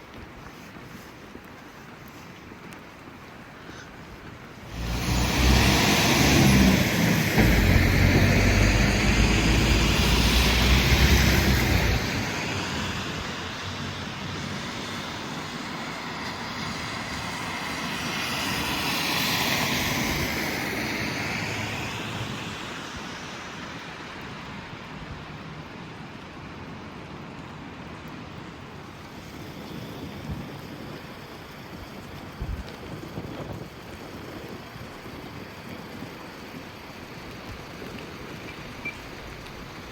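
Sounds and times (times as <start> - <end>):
tyre hiss on wet street: 0.0 - 39.9
vehicle engine rumbling: 4.6 - 17.4.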